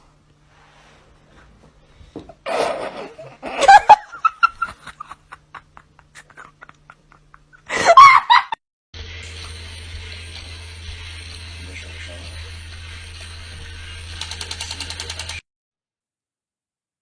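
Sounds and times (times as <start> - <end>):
steady hum: 0.0 - 7.9, 9.0 - 14.5
person laughing hard: 2.4 - 8.6.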